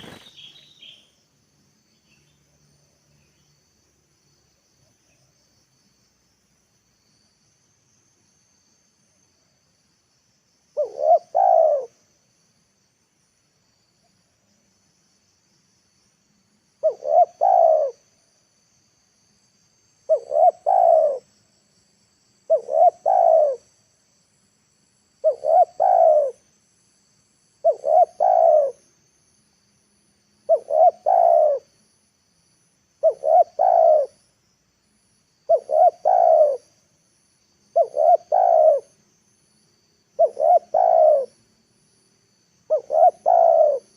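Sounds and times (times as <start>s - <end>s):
faint high insect drone: 0.0s - 43.9s
dove cooing: 10.8s - 12.0s, 16.8s - 18.0s, 20.1s - 21.3s, 22.5s - 23.7s, 25.2s - 26.4s, 27.6s - 28.8s, 30.5s - 31.7s, 33.0s - 34.2s, 35.5s - 36.7s, 37.7s - 38.9s, 40.2s - 41.4s, 42.7s - 43.9s.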